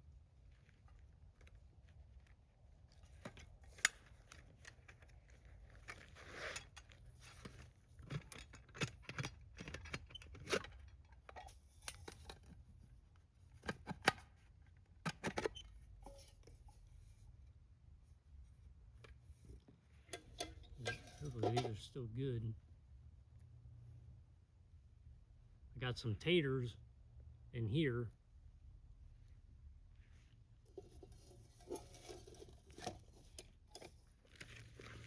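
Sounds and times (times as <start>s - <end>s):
gear clicks and knocks: 0.5s - 12.6s, 30.7s - 35.0s
rustling: 29.9s - 35.0s.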